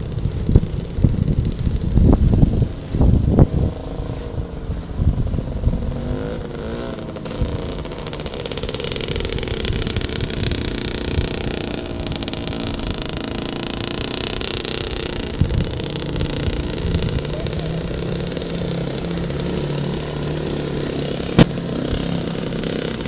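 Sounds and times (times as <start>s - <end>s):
motorcycle engine running: 0.0s - 23.0s
low thumps: 21.3s - 22.1s.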